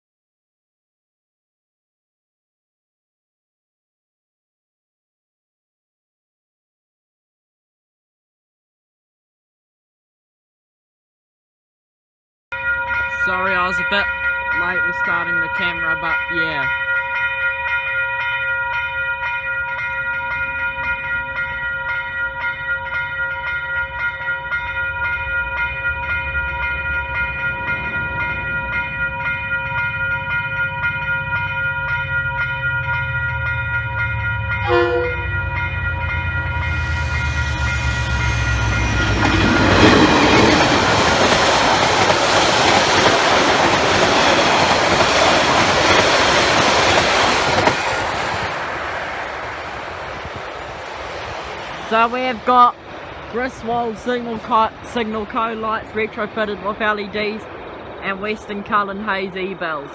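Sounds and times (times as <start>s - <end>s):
level-crossing bells ringing: 12.5s - 40.8s
train wheels on rails: 12.6s - 59.9s
train horn toot: 34.5s - 39.2s.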